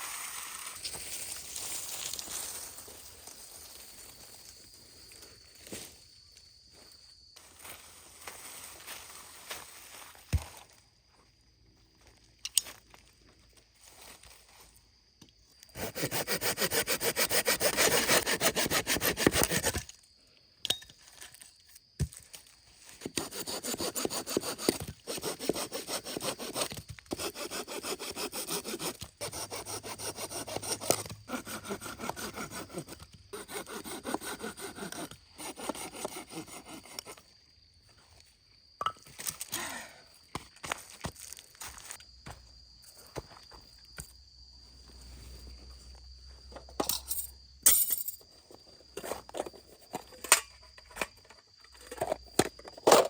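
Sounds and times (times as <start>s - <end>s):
hand saw cutting firewood: 15.7s - 19.8s, 23.0s - 37.2s.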